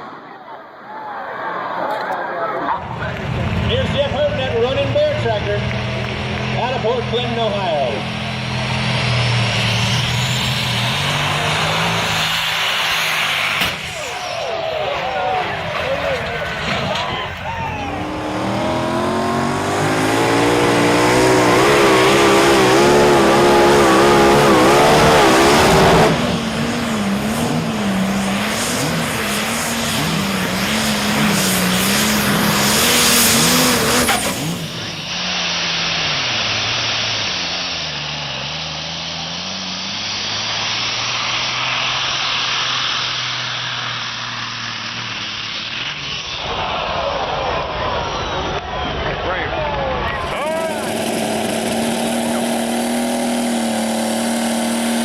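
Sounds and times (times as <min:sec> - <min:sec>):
pulling vehicle engines under load: 0:13.6 - 0:46.0.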